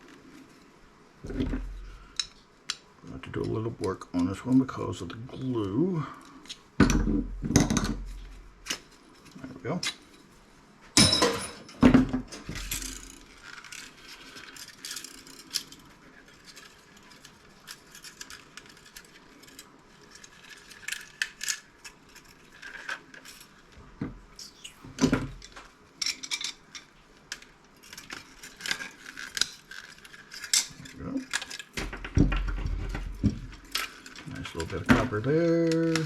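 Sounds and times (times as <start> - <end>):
metal parts clinking and rattling: 11.0 - 23.7, 25.3 - 36.0.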